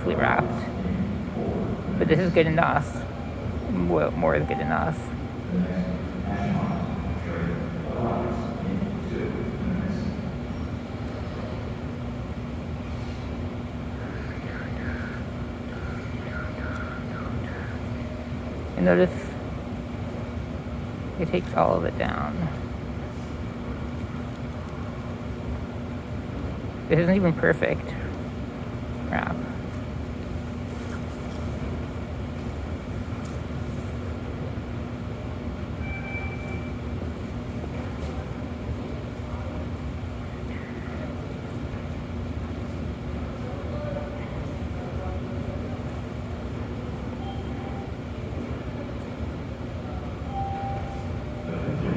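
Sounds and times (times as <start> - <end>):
subway train rumbling: 0.0 - 51.9.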